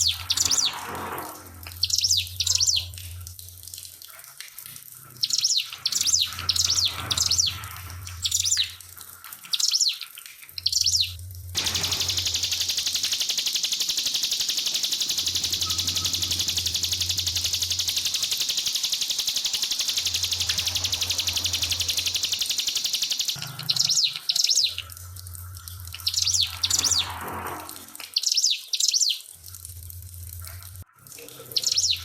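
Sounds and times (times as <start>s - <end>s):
bird singing rapid trill: 0.0s - 0.8s, 1.8s - 2.9s, 5.2s - 8.8s, 9.5s - 10.0s, 10.6s - 24.9s, 25.9s - 27.2s, 28.1s - 29.3s, 31.5s - 32.0s
trickling water: 0.0s - 32.0s.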